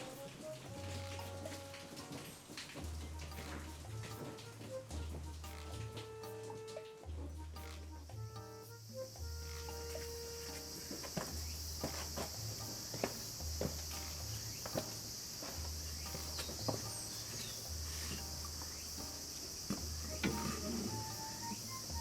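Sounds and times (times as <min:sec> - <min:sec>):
high insect chirring: 0:05.4 - 0:22.0.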